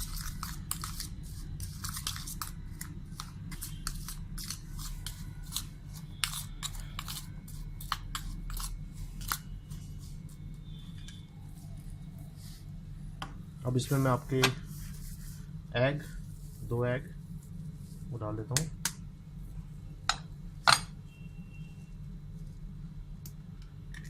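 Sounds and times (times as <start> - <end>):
utensil scraping a bowl: 0.0 - 12.0
steady low hum: 0.0 - 24.0.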